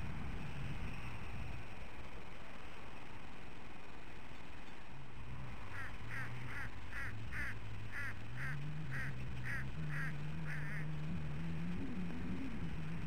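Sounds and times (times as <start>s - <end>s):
low hum: 4.7s - 13.0s.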